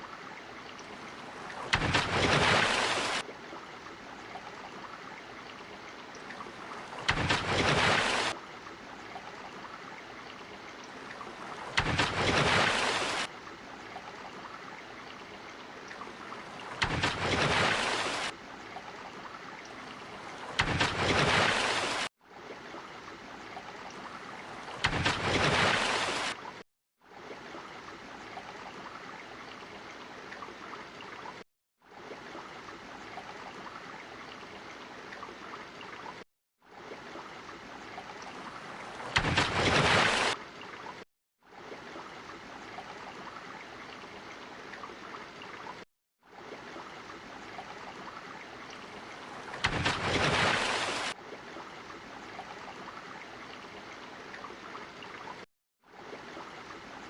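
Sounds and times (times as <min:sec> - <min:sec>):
water rushing: 0:00.0 - 0:57.0
louder rush of water: 0:01.2 - 0:03.3, 0:06.5 - 0:08.4, 0:11.2 - 0:13.3, 0:16.6 - 0:18.4, 0:20.2 - 0:22.1, 0:24.4 - 0:26.4, 0:38.4 - 0:40.4, 0:49.2 - 0:51.2.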